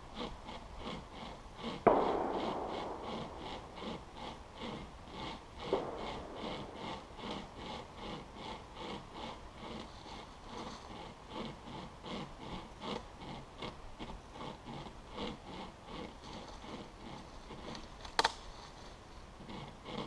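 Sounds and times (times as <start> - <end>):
saw rasping through branch: 0.0 - 20.0
sharp crack: 1.7 - 8.6, 17.6 - 18.5.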